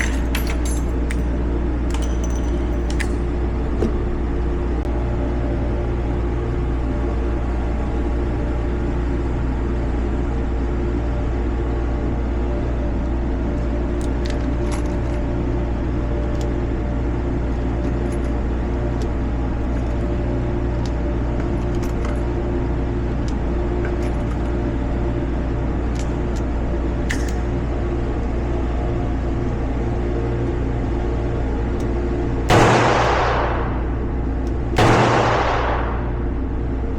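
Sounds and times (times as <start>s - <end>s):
metallic clicks of cartridges loading: 0.0s - 1.3s, 1.9s - 3.2s, 14.0s - 15.2s, 17.8s - 20.1s, 20.8s - 22.3s, 23.2s - 24.5s, 27.1s - 27.6s
steady low hum: 0.0s - 36.9s.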